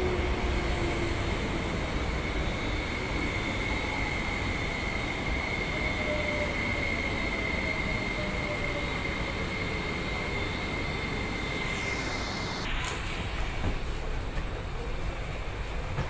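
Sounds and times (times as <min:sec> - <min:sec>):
electric train slowing to a stop: 0:00.0 - 0:16.0
high whine: 0:10.3 - 0:13.7.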